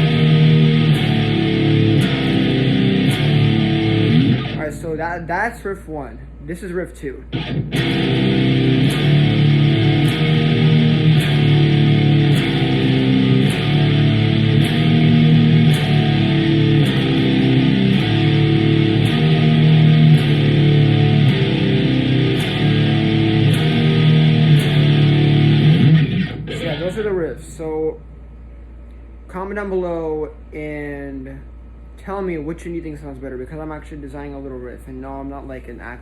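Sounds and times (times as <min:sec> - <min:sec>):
electric guitar low riff: 0:00.0 - 0:05.0, 0:07.3 - 0:27.4.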